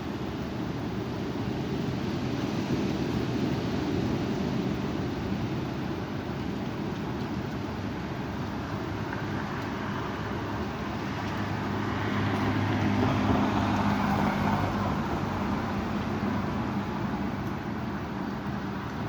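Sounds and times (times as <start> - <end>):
vehicle engine hum: 6.2 - 19.0.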